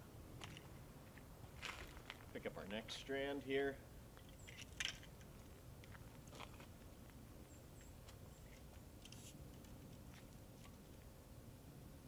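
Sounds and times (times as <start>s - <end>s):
light strand clicks and rustles: 7.8s - 11.1s.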